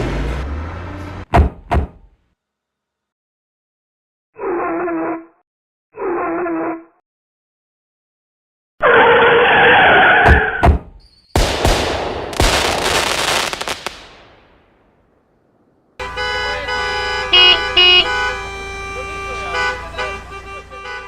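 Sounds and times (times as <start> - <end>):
blaring horn-like tone: 16.0 - 21.0.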